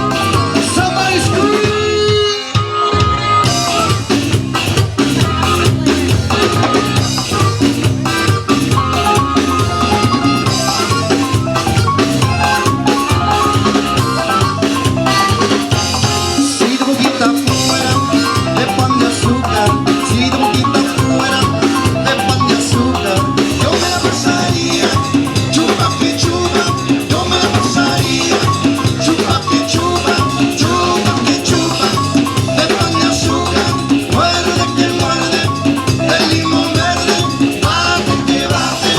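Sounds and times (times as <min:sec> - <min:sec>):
bass: 0:00.0 - 0:38.9
drum kit: 0:00.0 - 0:38.9
bright melodic lead: 0:02.9 - 0:16.7.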